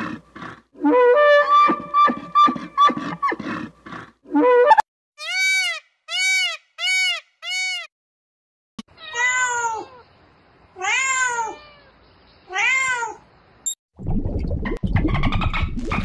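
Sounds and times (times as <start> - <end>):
peacock calling: 5.2 - 7.9
cat meowing: 10.8 - 13.2.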